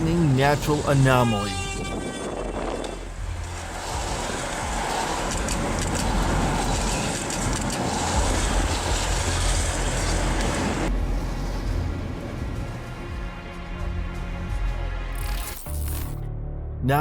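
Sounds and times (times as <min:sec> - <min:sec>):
wind: 0:00.0 - 0:15.6
vehicle rushing noise: 0:01.9 - 0:14.3.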